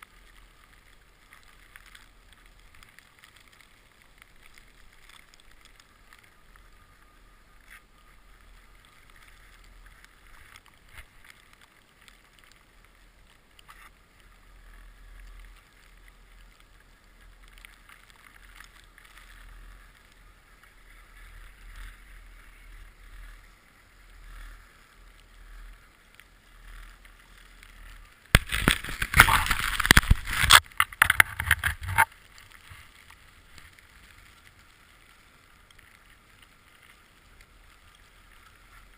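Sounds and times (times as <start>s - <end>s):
skis hissing over snow: 0.0s - 30.7s, 31.7s - 38.9s
faint low rumble: 0.0s - 38.9s
rough scraping and buffeting: 20.9s - 34.7s.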